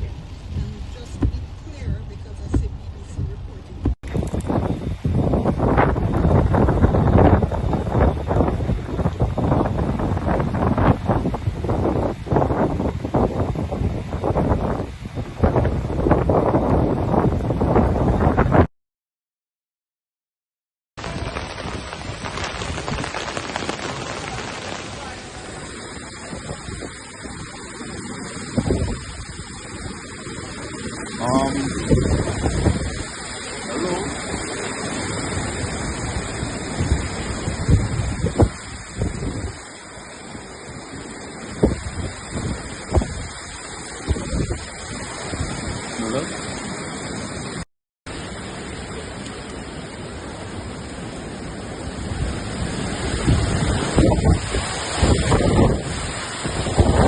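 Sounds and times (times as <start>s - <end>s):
gusts buffeting microphone: 0.0s - 18.7s, 21.0s - 57.0s
storm wind and rain: 0.0s - 18.7s, 21.0s - 57.0s
loud thump: 1.2s - 1.4s, 2.5s - 2.7s.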